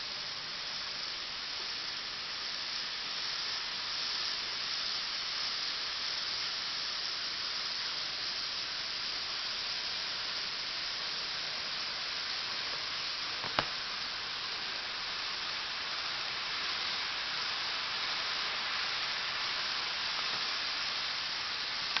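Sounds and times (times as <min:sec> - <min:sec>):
steady high hiss: 0:00.0 - 0:22.0
sharp click: 0:13.4 - 0:13.7.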